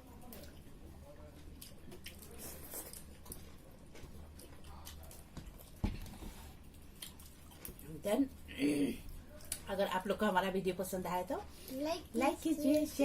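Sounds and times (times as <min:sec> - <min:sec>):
wet chewing: 0:00.2 - 0:09.7.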